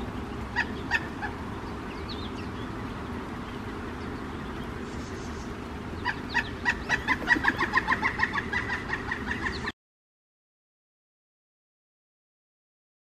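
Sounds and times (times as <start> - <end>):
steady low hum: 0.0 - 9.7
woodpecker calling: 0.0 - 9.7.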